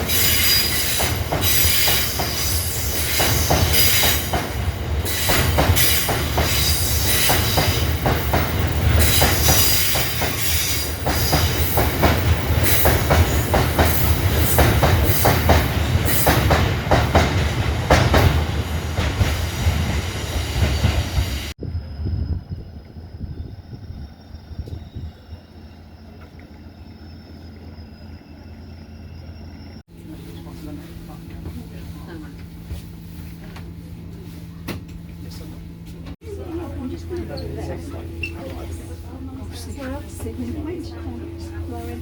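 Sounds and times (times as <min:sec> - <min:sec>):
wheels squealing on rail: 0:00.0 - 0:17.4, 0:19.2 - 0:29.8, 0:37.4 - 0:40.0
train wheels rumbling on rail: 0:00.0 - 0:42.0.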